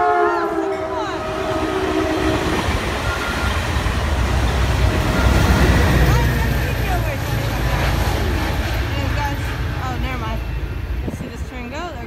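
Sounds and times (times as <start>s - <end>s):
train horn chord: 0.0s - 3.2s
train passing rumble: 0.0s - 12.0s.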